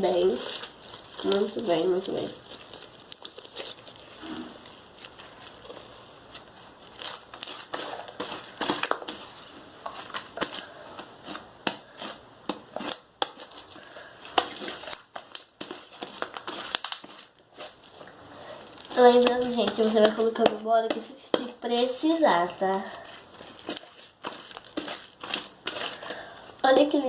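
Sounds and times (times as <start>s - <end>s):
slime squishing with crackles: 0.0s - 27.0s.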